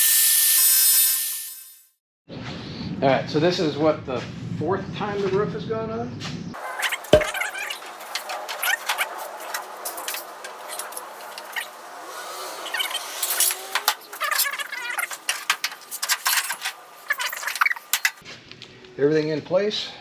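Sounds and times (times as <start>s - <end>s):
sheet metal clattering: 6.6s - 18.2s
short metallic squeaks: 6.6s - 18.2s.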